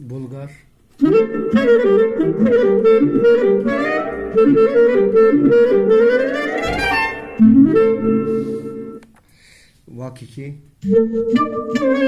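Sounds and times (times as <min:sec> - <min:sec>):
clarinet-like melody: 0:01.0 - 0:09.0, 0:10.8 - 0:12.0.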